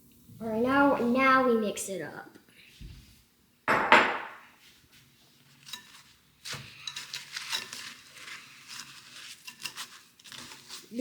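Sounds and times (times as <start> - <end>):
spoon scraping in a bowl: 5.4 - 11.0.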